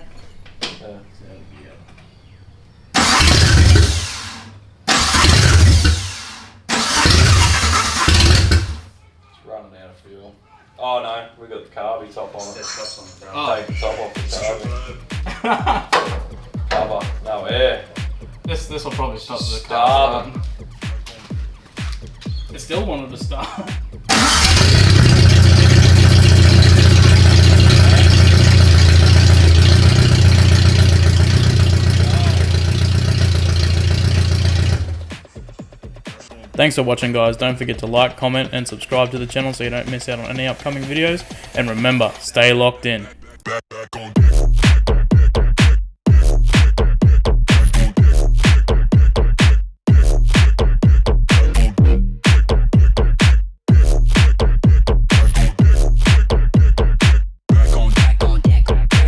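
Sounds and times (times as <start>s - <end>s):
car engine starting and dying: 3.0s - 8.9s, 24.1s - 35.3s.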